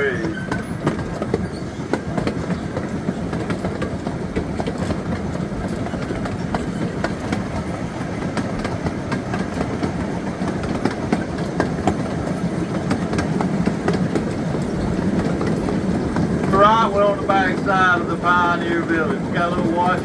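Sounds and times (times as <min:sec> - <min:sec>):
train rumbling along track: 0:00.0 - 0:20.0
wheels clicking over rail joints: 0:00.0 - 0:20.0.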